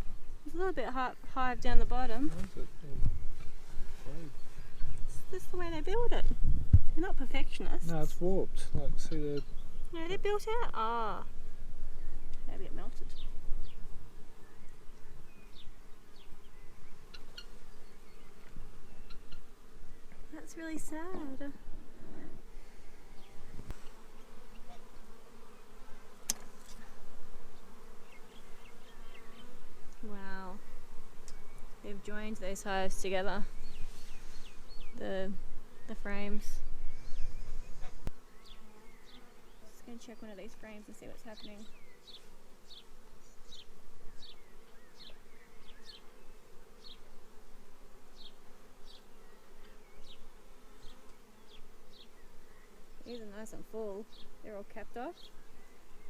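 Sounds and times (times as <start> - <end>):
honeybees buzzing: 0.0 - 56.0
sharp click: 26.2 - 26.5.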